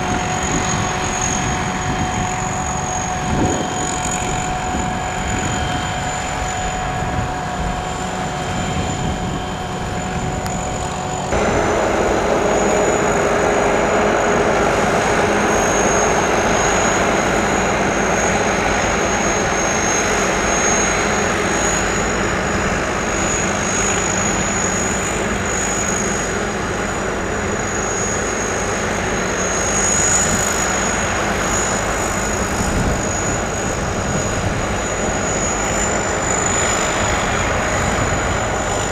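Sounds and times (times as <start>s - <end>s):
high whine: 0.0s - 26.3s
harvester engine droning: 0.0s - 38.9s.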